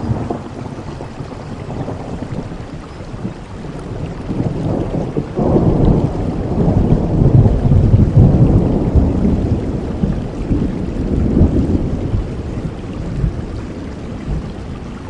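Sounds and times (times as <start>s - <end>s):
deep rumble of thunder: 0.0s - 15.0s
steady rainfall: 0.0s - 15.0s.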